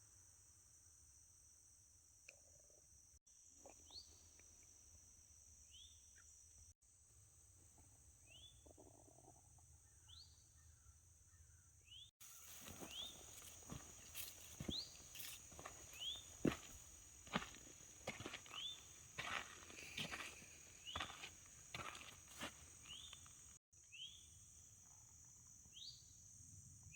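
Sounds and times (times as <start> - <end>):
footsteps: 12.2 - 23.3
high insect drone: 12.2 - 26.9.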